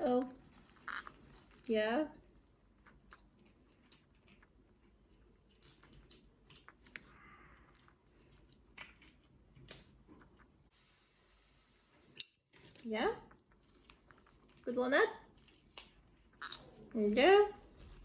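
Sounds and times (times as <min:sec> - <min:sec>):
beak crunching a walnut: 0:00.2 - 0:01.8.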